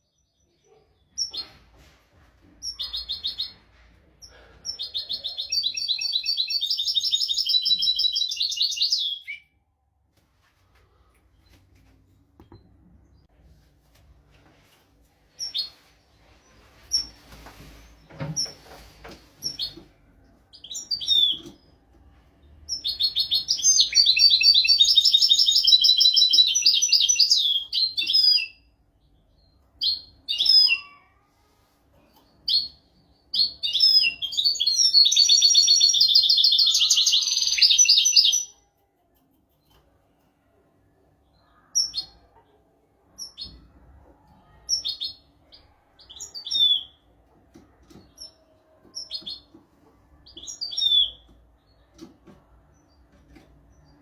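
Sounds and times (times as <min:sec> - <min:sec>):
bird chirping: 0:02.6 - 0:03.6, 0:04.2 - 0:09.6, 0:20.5 - 0:21.8, 0:22.7 - 0:31.1, 0:32.2 - 0:39.8, 0:44.4 - 0:47.0, 0:47.8 - 0:54.0.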